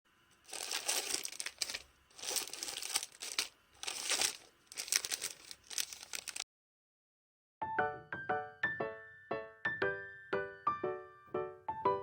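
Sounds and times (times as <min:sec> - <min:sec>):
packaging crinkling: 0:00.4 - 0:06.4.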